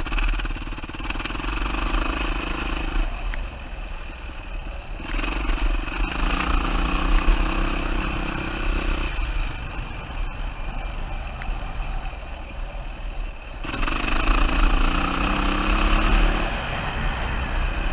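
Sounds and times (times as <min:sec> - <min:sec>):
motorcycle engine revving: 0:00.0 - 0:11.2, 0:13.3 - 0:17.9.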